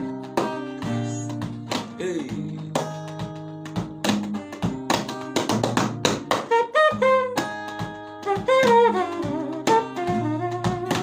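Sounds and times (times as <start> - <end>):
backing music with percussive taps: 0.0 - 11.0
man vocally imitating saxophone: 0.8 - 3.0, 8.2 - 11.0.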